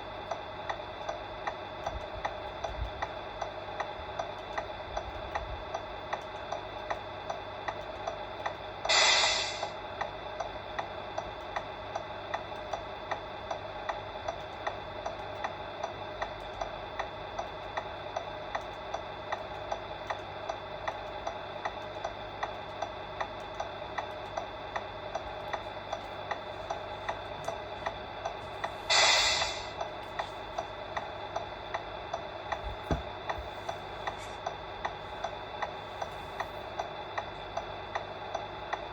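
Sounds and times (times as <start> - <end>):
steady hum: 0.0 - 38.9
regular ticking: 10.0 - 28.8, 29.6 - 36.1, 36.7 - 38.9.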